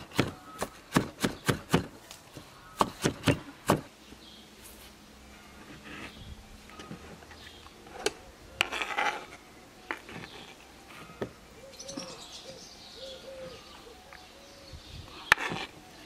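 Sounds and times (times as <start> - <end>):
birds chirping: 0.0 - 4.6, 5.2 - 16.0.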